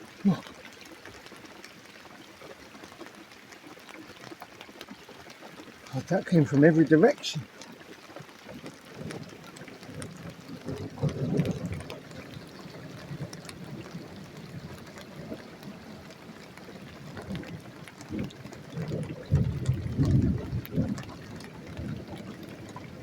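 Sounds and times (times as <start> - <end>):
heavy rain pouring: 0.0 - 23.0
low rumbles of thunder: 9.9 - 15.9, 17.2 - 23.0.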